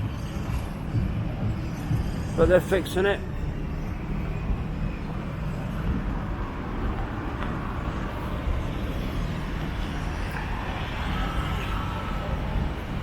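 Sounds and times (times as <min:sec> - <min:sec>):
road traffic: 0:00.0 - 0:13.0
wind buffeting microphone: 0:04.2 - 0:13.0.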